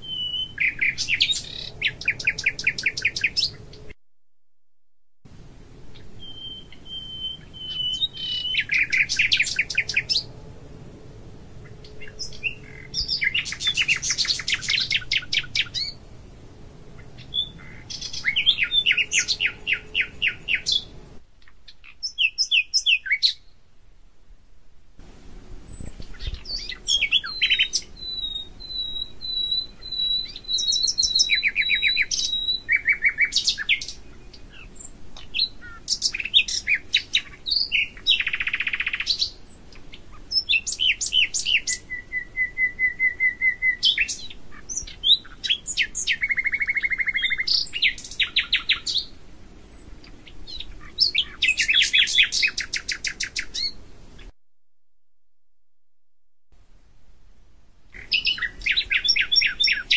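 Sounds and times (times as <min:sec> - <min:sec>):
bird singing with trills: 0:00.0 - 0:03.9, 0:06.0 - 0:10.3, 0:11.6 - 0:16.0, 0:17.0 - 0:20.9, 0:21.7 - 0:23.5, 0:25.4 - 0:54.3, 0:58.0 - 0:59.9.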